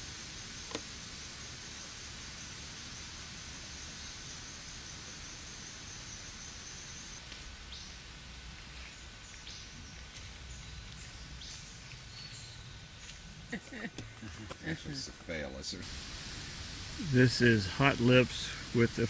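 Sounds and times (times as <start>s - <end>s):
faint insect hiss: 0.0s - 19.0s
high falling chirps: 5.6s - 13.6s.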